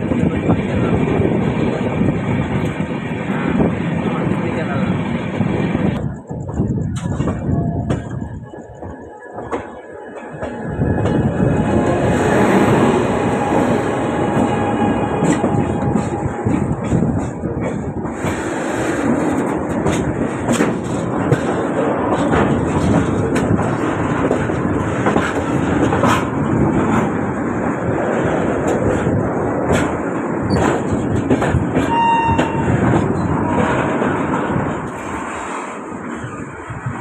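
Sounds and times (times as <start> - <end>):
freight train passing: 0.0 - 37.0
train wheels rumbling on rails: 0.0 - 37.0
high wheel squeal: 31.9 - 33.3.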